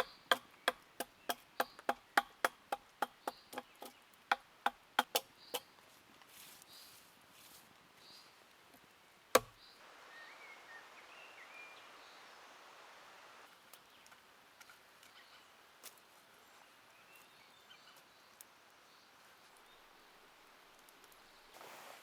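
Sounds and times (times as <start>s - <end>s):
bird chirps: 0.0s - 2.5s, 9.6s - 12.5s
steady outdoor hiss: 0.0s - 22.0s.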